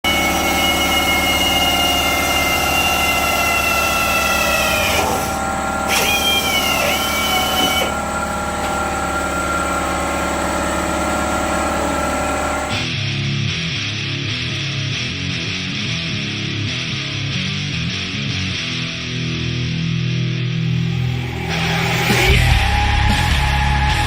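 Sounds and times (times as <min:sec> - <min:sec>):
machine whining: 0:00.0 - 0:12.9, 0:20.6 - 0:24.0
mechanical hum: 0:00.0 - 0:12.9.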